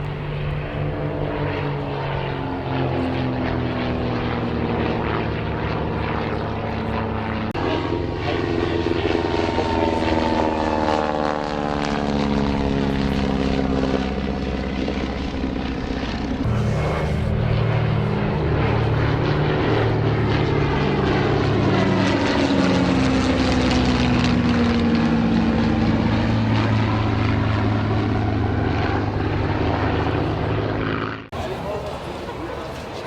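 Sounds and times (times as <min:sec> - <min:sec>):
propeller aircraft flying past: 0:00.0 - 0:33.0.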